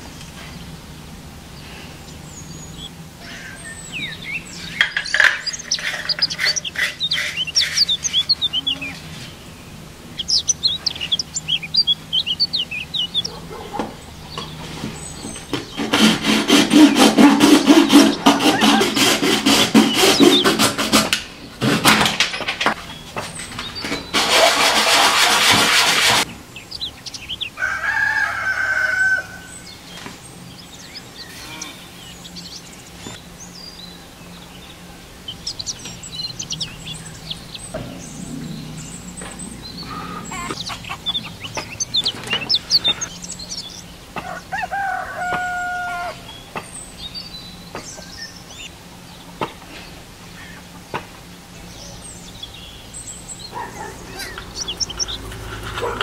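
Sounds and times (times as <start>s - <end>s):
hacksaw sawing plastic: 4.8s - 8.0s, 15.5s - 22.7s, 23.8s - 26.3s
rooster crowing: 18.0s - 19.0s, 27.5s - 29.8s, 44.2s - 46.4s.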